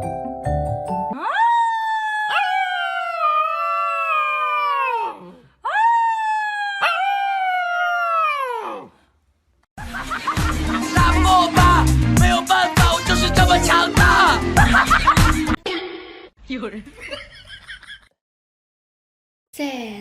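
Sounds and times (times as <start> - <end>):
dog howling: 1.2 - 8.9.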